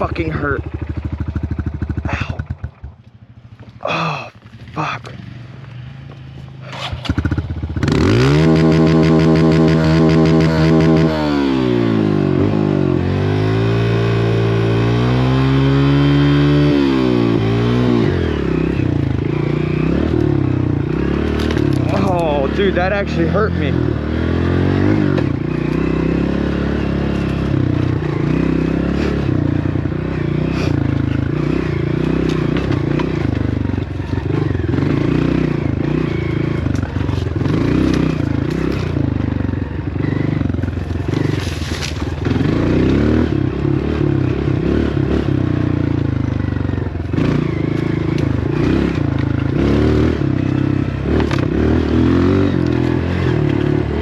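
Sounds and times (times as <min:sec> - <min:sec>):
dirt bike engine revving: 0:06.6 - 0:54.0.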